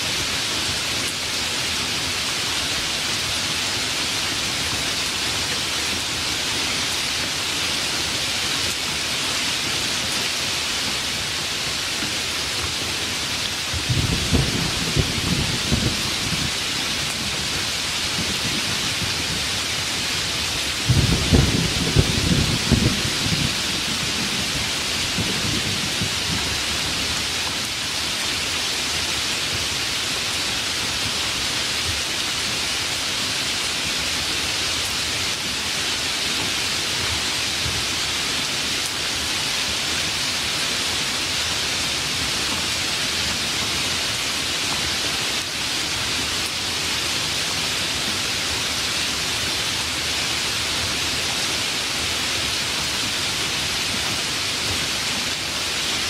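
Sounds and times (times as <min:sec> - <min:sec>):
heavy rain falling: 0:00.0 - 0:56.0
low thunder rumble: 0:13.8 - 0:16.6, 0:20.8 - 0:26.6.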